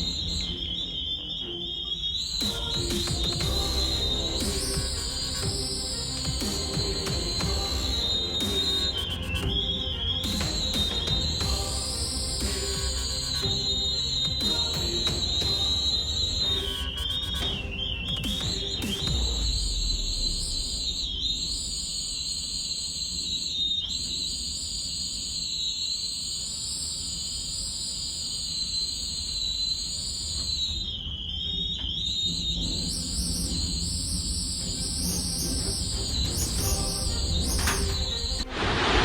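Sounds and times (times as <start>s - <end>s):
high wavering wind whistle: 0.0s - 23.7s.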